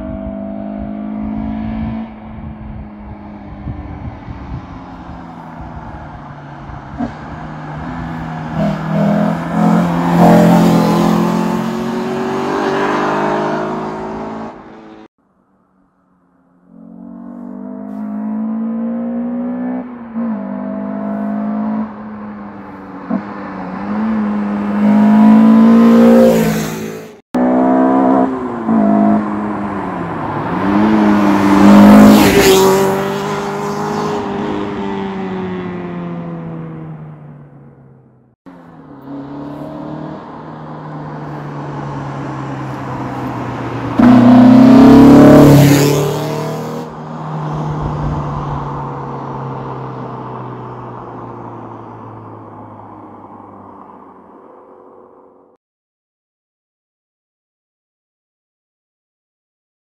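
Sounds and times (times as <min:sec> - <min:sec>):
car engine revving: 0:04.7 - 0:15.1, 0:16.5 - 0:37.4, 0:38.5 - 0:51.4.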